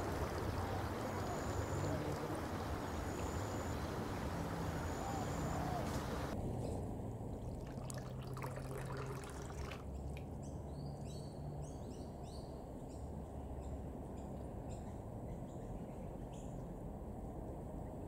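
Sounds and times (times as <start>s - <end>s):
brook trickling over rocks: 0.0s - 4.9s, 7.4s - 10.3s.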